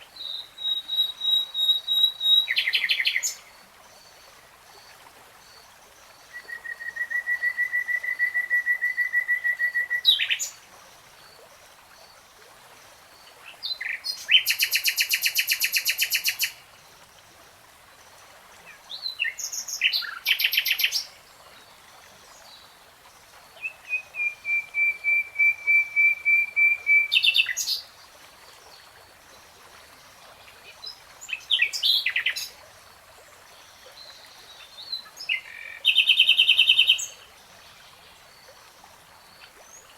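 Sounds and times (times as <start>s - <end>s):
nightingale singing: 0.2s - 3.4s, 23.6s - 27.8s.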